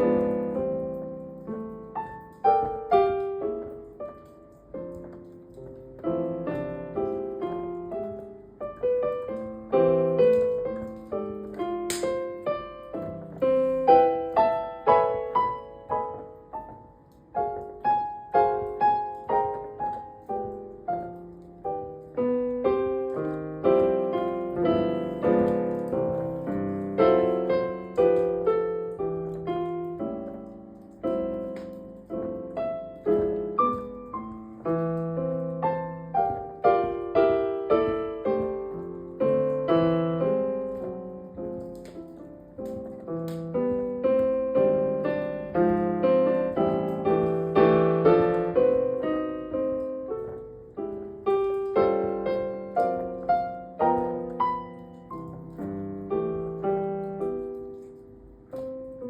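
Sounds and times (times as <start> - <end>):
solo piano: 0.0 - 59.0
sharp click: 11.5 - 12.3.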